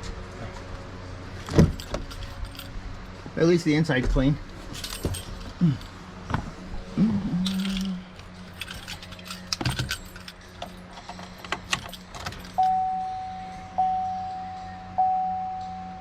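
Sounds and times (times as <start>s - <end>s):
keys jangling: 1.4s - 2.9s, 4.5s - 6.0s, 7.3s - 12.8s
dashboard warning chime: 12.4s - 16.0s.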